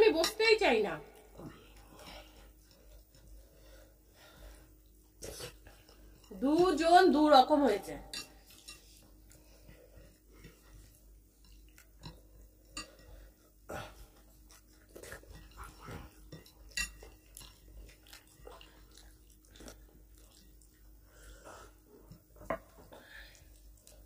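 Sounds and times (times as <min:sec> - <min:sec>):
quiet chewing mouth sounds: 0:01.2 - 0:06.4, 0:08.2 - 0:24.0.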